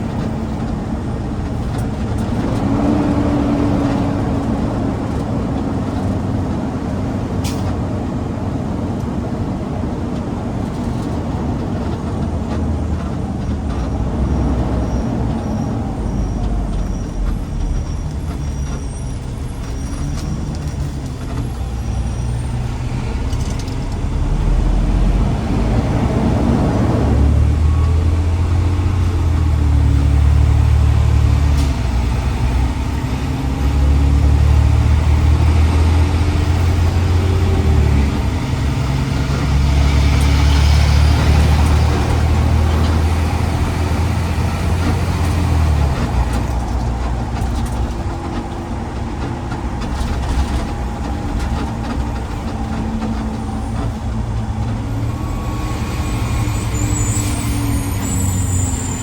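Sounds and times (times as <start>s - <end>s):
garbage truck engine rumbling: 0.0s - 59.0s.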